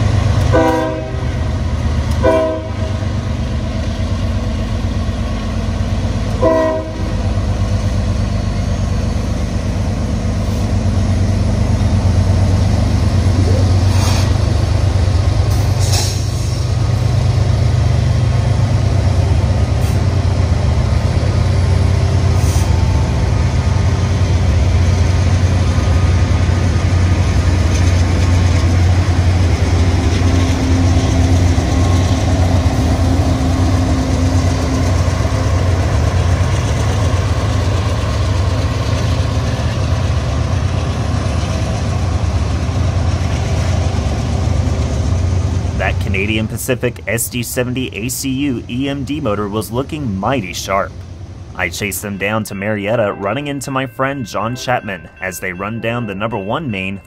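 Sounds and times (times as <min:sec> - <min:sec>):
diesel locomotive engine rumble: 0:00.0 - 0:57.0
locomotive horn blasts: 0:00.5 - 0:01.3, 0:02.2 - 0:02.9, 0:06.4 - 0:07.1.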